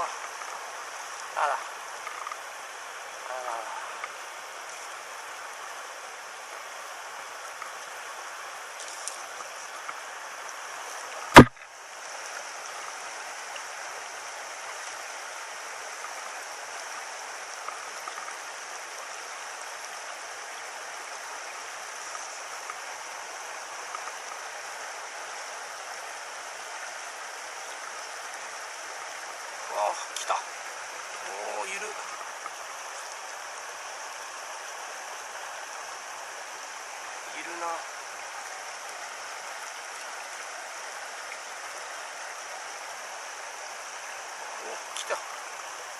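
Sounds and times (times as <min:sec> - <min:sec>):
stream running over stones: 0:00.0 - 0:45.9
sharp knock: 0:11.3 - 0:11.6.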